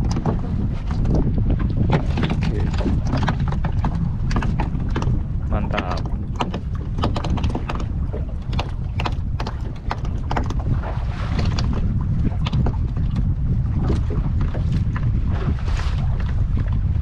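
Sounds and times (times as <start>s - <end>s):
wind buffeting microphone: 0.0s - 17.0s
short irregular clicks and knocks: 5.7s - 10.6s.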